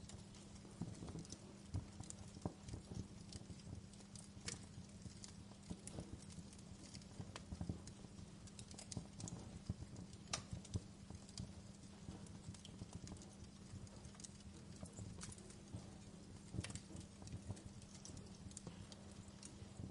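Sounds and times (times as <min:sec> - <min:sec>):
low steady hum: 0:00.0 - 0:19.9
wood fire crackling and popping: 0:00.0 - 0:19.9.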